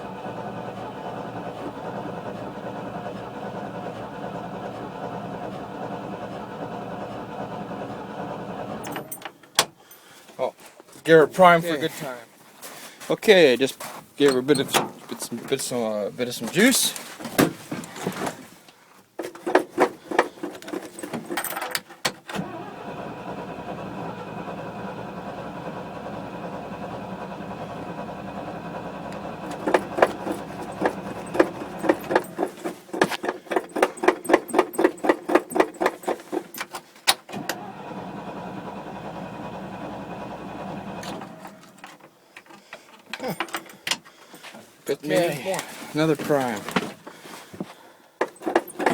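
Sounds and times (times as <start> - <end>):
engine running: 0.0 - 9.3, 22.4 - 42.1
starter cranking engine: 0.0 - 9.3, 22.2 - 42.6, 45.2 - 47.0, 48.2 - 48.9.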